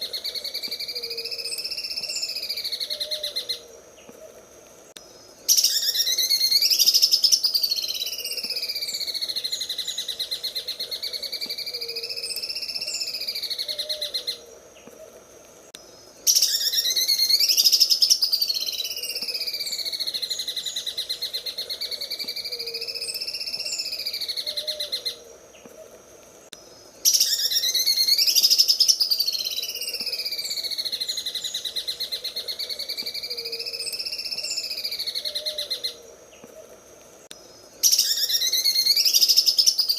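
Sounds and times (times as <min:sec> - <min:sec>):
bird singing fast trill: 0:05.5 - 0:14.4, 0:16.2 - 0:25.2, 0:27.0 - 0:36.0, 0:37.8 - 0:39.9.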